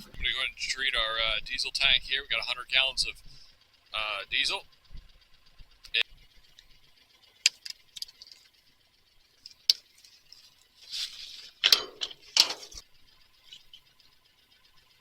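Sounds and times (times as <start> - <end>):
knocks and scrapes: 9.4 - 12.8.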